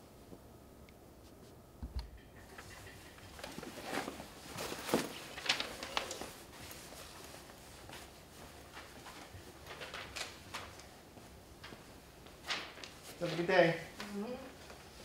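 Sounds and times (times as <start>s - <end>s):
clothes and backpack rustling: 3.3s - 15.0s.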